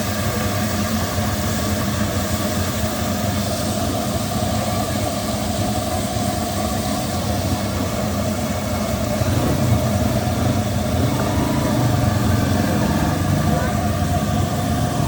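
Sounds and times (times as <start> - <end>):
engine rumble: 6.9 - 15.0.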